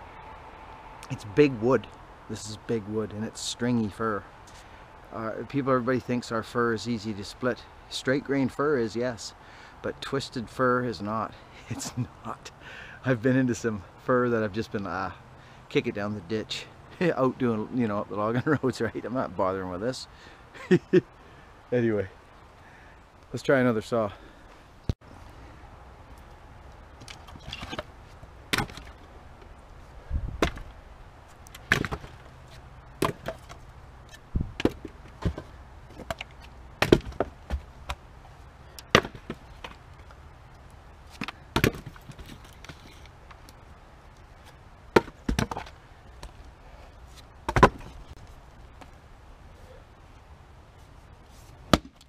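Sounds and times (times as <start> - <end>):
axe striking wood: 28.5 - 29.0, 30.4 - 30.7, 31.6 - 32.2, 33.0 - 33.5, 36.0 - 38.0, 38.9 - 39.8, 41.2 - 42.2, 45.0 - 45.7, 47.5 - 47.9, 51.7 - 52.0.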